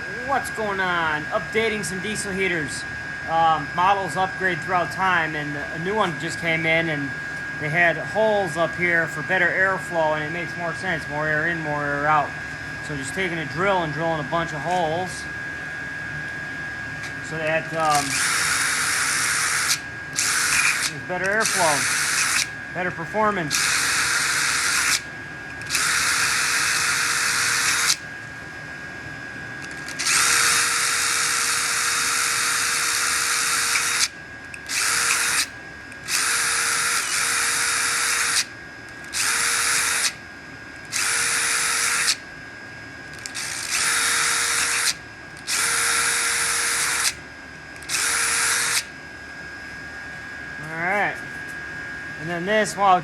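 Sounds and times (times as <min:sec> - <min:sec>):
power drill boring holes: 0:17.3 - 0:28.0, 0:29.6 - 0:40.2, 0:40.8 - 0:42.2, 0:43.1 - 0:47.2, 0:47.8 - 0:48.9.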